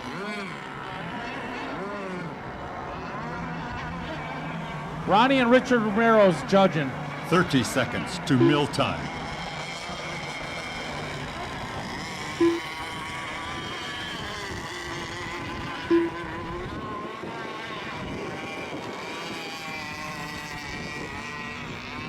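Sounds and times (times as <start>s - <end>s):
model boat engines whining: 0.0s - 22.0s
short loud tones: 12.4s - 12.8s, 15.9s - 16.2s.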